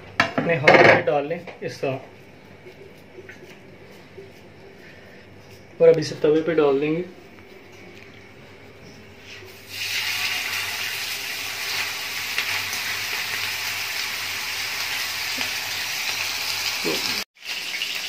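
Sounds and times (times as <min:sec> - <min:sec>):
meat patty sizzling in oil: 0:09.6 - 0:18.0.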